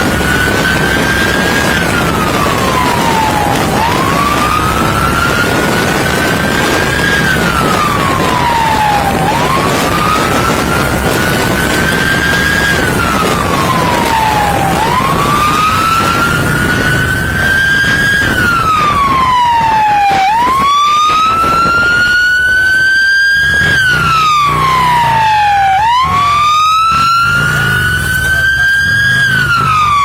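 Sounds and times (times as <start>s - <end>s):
police siren wailing: 0.0s - 30.0s
vehicle and wind rumble: 0.0s - 30.0s.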